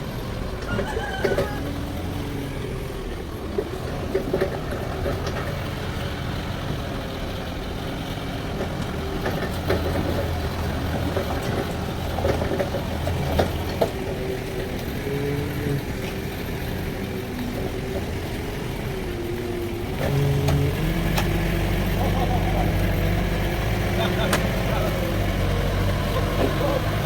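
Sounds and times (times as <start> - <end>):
band sawmill running: 0.0 - 27.0.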